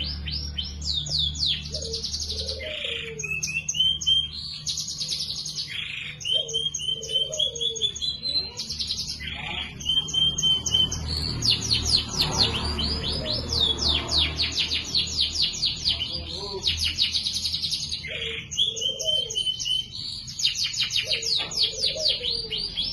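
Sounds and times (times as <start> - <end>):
canary singing trills: 0.0 - 22.9.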